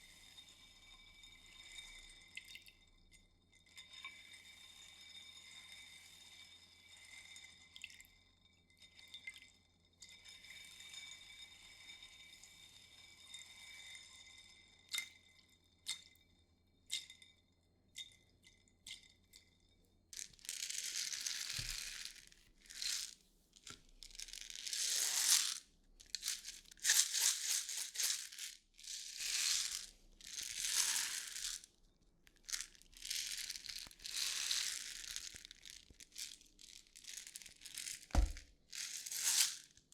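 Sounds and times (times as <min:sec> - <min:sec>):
scratchy rustling strokes: 0:20.2 - 0:31.7.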